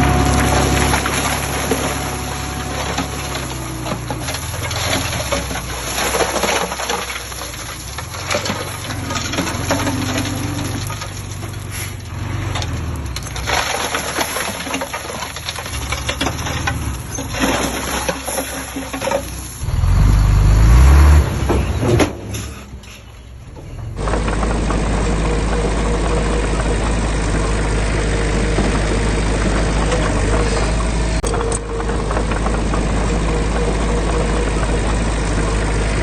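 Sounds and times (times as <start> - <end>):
dirt and stones tumbling: 0.0 - 36.0
heavy diesel engine running: 0.0 - 36.0.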